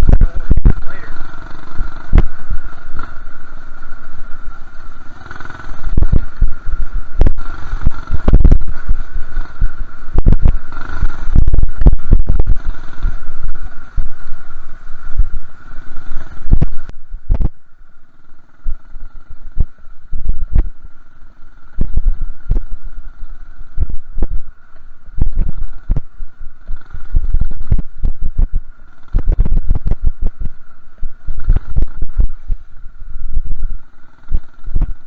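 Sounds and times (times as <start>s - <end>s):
heavy thuds on rough track: 0.0s - 17.6s, 26.7s - 32.7s
wind buffeting microphone: 0.0s - 17.7s, 18.4s - 35.0s
minibike engine running: 0.0s - 35.0s.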